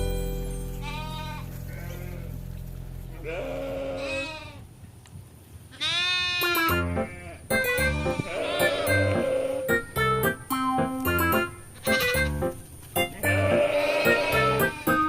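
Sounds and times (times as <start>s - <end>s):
goats bleating: 0.8s - 2.4s, 3.1s - 4.7s, 5.7s - 9.9s, 11.8s - 12.4s, 13.0s - 15.0s.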